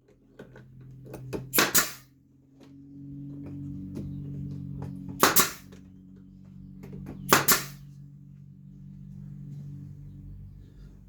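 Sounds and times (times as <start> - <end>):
steady low hum: 0.3 - 11.0
pneumatic nailer firing: 1.4 - 2.1, 5.2 - 5.7, 7.3 - 7.9.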